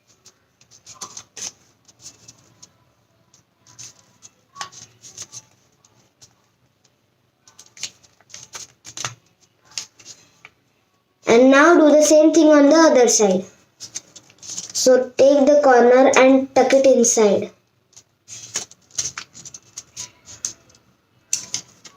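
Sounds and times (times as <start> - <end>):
paper crinkling as folded: 0.0 - 2.8, 3.6 - 6.5, 7.4 - 10.4, 13.8 - 14.9, 17.9 - 21.9.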